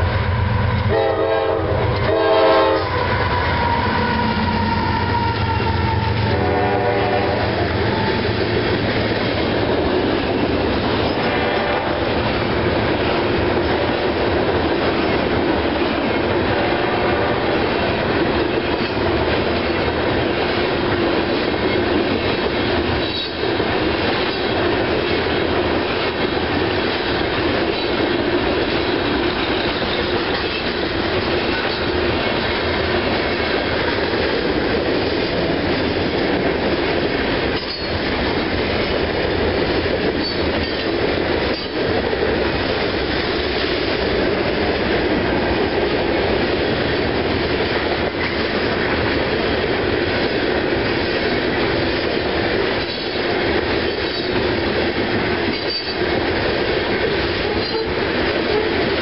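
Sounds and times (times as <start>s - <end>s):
train wheels rumbling on rails: 0.0s - 59.0s
high wheel squeal: 2.9s - 6.3s.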